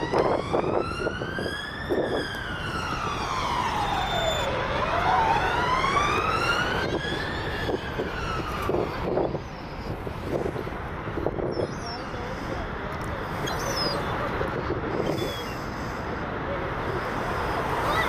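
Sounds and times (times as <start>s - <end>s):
emergency siren wailing: 0.0s - 10.1s.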